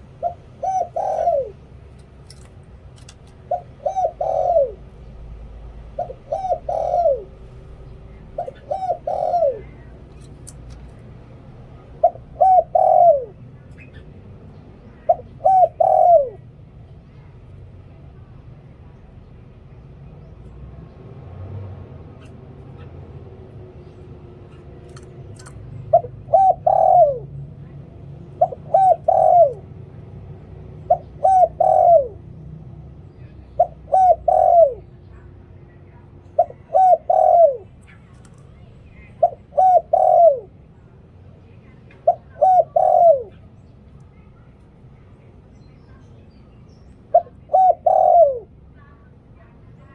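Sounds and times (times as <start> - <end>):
dove cooing: 0.0 - 16.7, 24.5 - 32.4, 33.2 - 35.4, 36.2 - 40.7, 41.6 - 43.6, 47.0 - 49.1.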